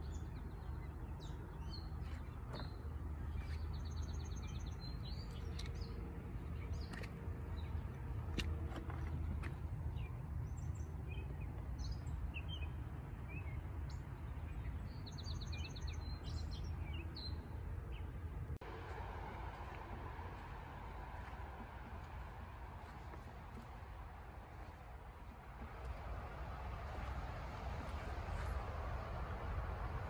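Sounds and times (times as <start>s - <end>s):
birds singing: 0.0s - 18.4s
steady low rumble: 16.0s - 30.0s.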